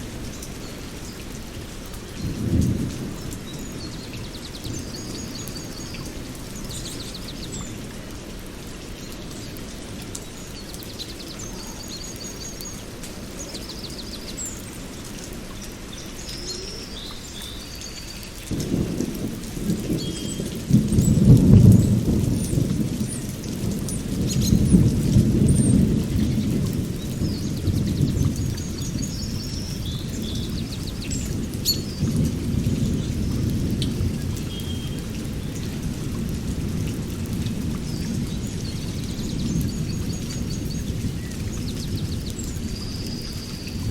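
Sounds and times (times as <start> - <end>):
thunder rumbling: 0.0 - 8.7, 18.5 - 43.9
steady rain: 0.0 - 43.9
birds chirping: 2.2 - 18.8.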